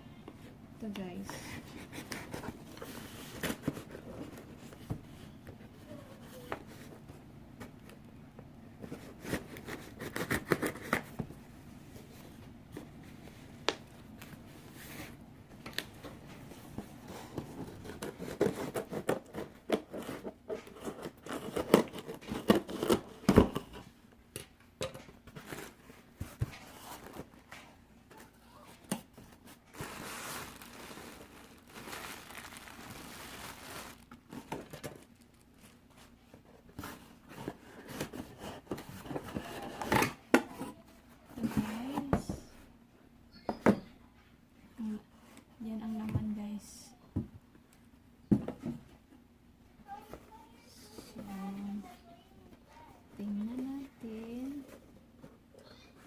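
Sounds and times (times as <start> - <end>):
packaging scraping and tearing: 17.5 - 23.3, 29.4 - 35.6
packaging rustling: 29.2 - 35.9.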